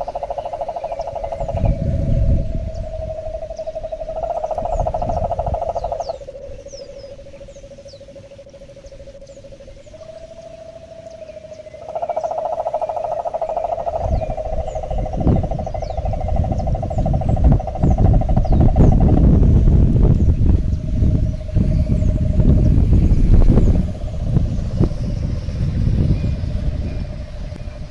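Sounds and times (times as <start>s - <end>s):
frogs trilling: 0.0s - 27.9s
low rumble: 0.9s - 8.0s, 13.8s - 27.9s.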